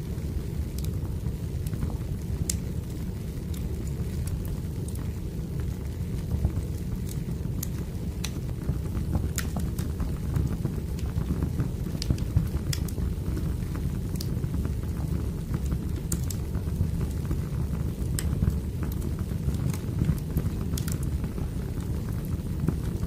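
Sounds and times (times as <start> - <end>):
fire pops and snaps: 0.0 - 23.0
low rumble of burning logs: 0.0 - 23.0.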